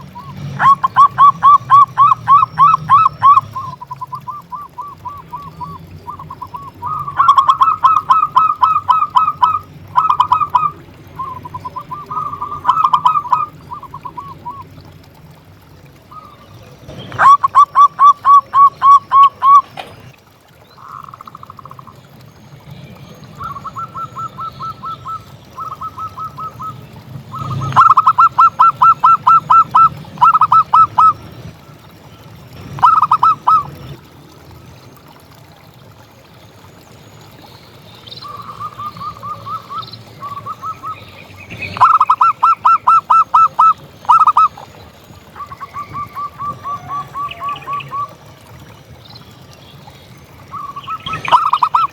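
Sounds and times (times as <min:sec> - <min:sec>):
dove staccato cooing: 0:00.0 - 0:15.4, 0:17.1 - 0:20.1, 0:23.4 - 0:31.2, 0:32.6 - 0:34.0, 0:41.6 - 0:48.2, 0:50.5 - 0:51.9.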